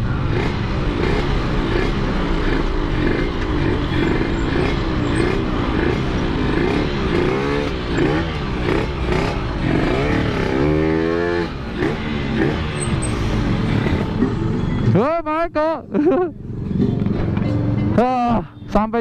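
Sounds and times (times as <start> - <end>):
two-stroke motorcycle engine revving: 0.0 - 14.6.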